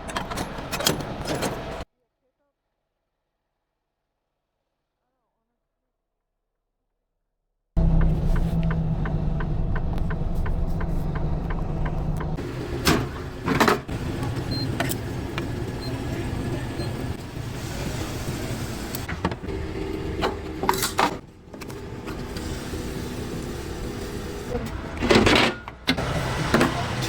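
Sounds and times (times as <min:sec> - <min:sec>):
sharp knocks and clicks: 0:07.8 - 0:12.4
truck engine running: 0:07.8 - 0:20.7.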